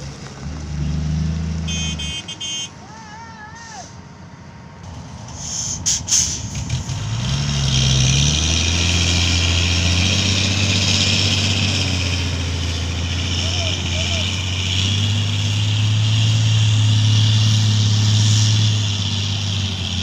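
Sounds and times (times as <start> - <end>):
diesel truck engine speeding up: 0.0 - 20.0
hiss: 5.2 - 7.0, 16.3 - 19.8.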